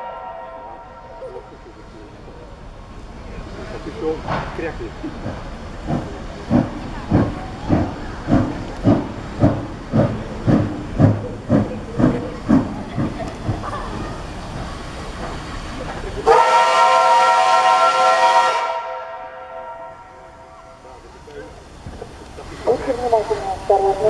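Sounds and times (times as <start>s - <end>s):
steam locomotive chuffing: 0.0s - 24.0s
steam whistle blast: 16.3s - 20.8s.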